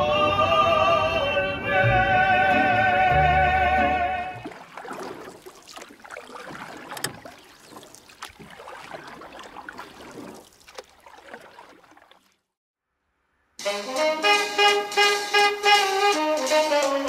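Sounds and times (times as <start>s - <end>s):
jumbled riverside background noise: 4.4s - 12.4s.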